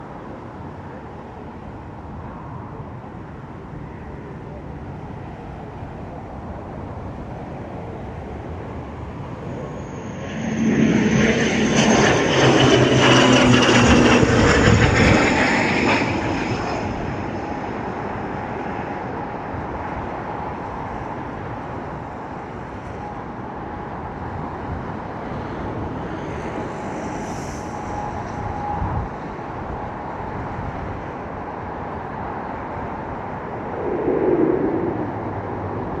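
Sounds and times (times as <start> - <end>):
turboprop plane passing: 5.2 - 36.0.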